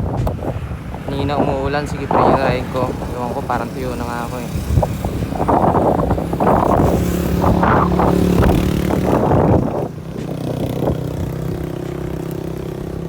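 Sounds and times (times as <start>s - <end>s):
vehicle engine running: 2.5s - 13.0s.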